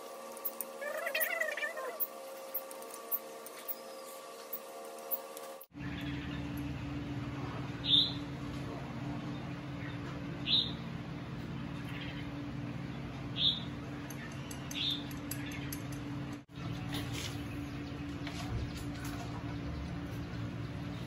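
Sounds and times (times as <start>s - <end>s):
steady low hum: 0.0s - 21.0s
small bird chirping: 0.4s - 6.7s.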